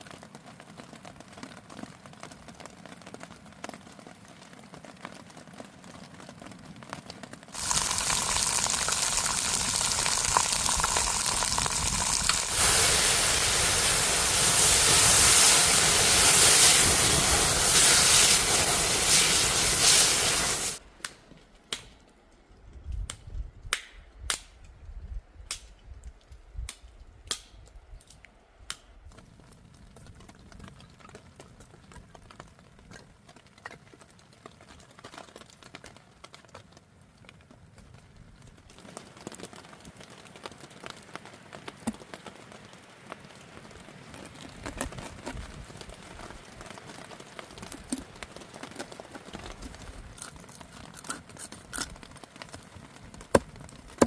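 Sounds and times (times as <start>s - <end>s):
soft crackling hiss: 0.1s - 54.0s
hot oil sizzling: 7.6s - 20.8s.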